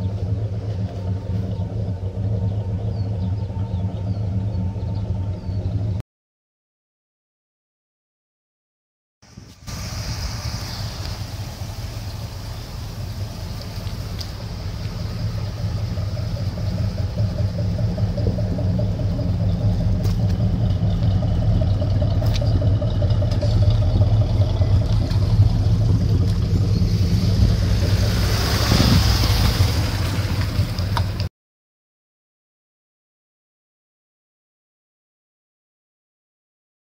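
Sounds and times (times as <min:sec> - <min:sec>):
car engine rumbling: 0:00.0 - 0:06.0, 0:09.2 - 0:31.3
rush of hiss: 0:09.3 - 0:14.1.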